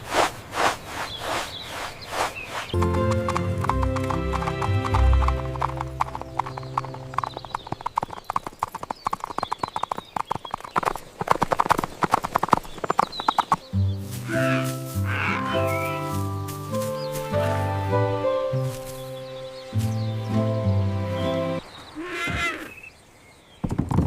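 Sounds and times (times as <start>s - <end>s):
horse hooves trotting: 0.2s - 20.6s
music holding low chords: 2.8s - 7.6s, 13.7s - 21.6s.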